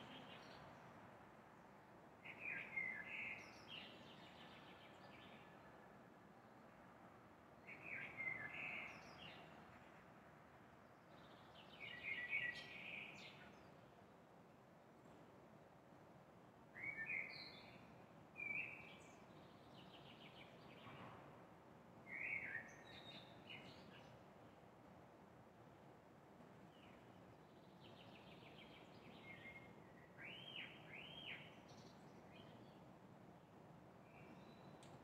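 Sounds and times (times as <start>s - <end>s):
songbird chirping: 0.0s - 0.9s, 2.2s - 5.8s, 7.6s - 9.7s, 10.9s - 14.0s, 16.8s - 21.2s, 22.1s - 24.6s, 26.6s - 33.0s, 34.0s - 35.0s.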